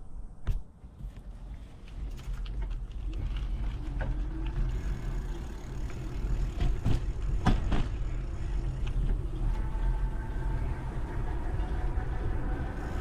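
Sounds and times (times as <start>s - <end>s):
bike riding rumble: 0.4s - 13.0s
bike knocks and rattles: 1.9s - 8.4s.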